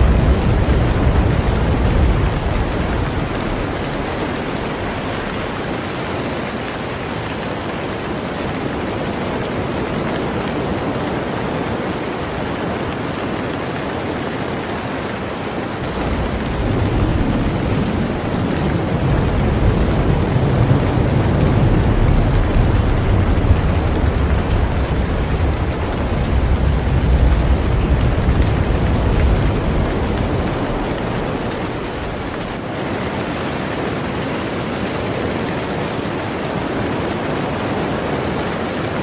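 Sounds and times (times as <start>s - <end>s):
thunder rumbling: 0.0s - 11.5s, 15.7s - 33.2s
heavy rain on a boat: 0.0s - 39.0s.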